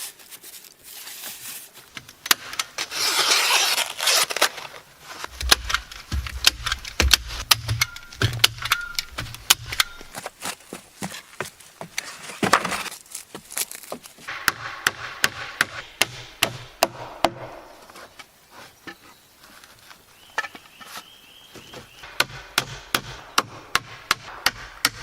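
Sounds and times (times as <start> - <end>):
hammer driving nails into wood: 5.3 - 10.1.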